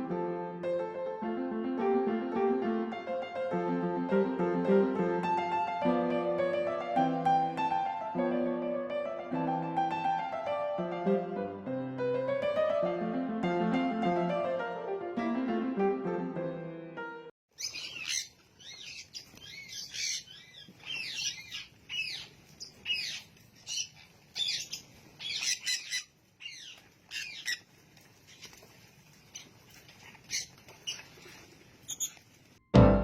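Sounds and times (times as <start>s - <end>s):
parrot squawking and chirping: 17.5s - 32.3s.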